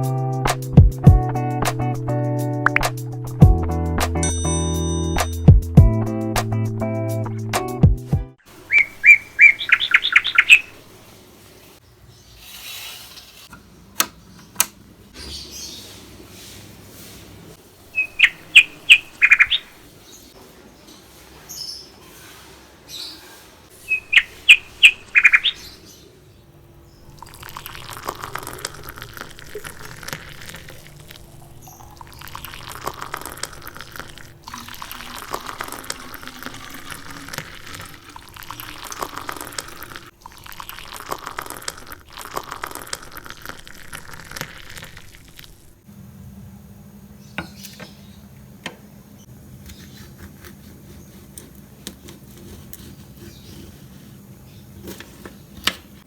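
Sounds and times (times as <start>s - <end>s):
water running from tap: 27.1s - 45.8s.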